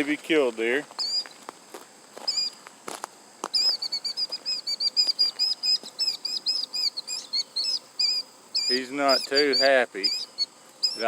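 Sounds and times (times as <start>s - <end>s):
bird piping alarm calls: 1.0s - 1.4s, 2.2s - 2.6s, 3.5s - 11.0s.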